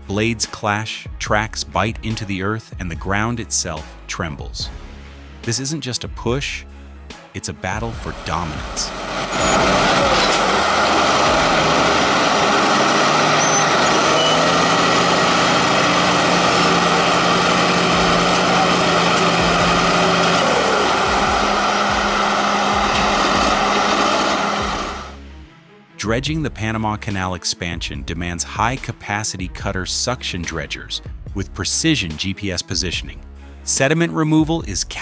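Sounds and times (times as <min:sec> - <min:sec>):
bulldozer diesel engines droning: 0:08.0 - 0:25.2
low hum: 0:08.1 - 0:25.3.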